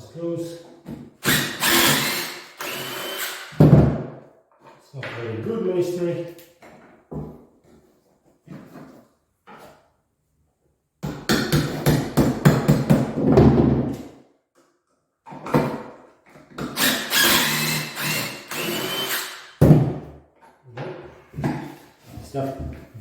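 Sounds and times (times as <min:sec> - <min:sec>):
hammer drill boring into wall: 0:01.2 - 0:03.6, 0:16.6 - 0:19.6.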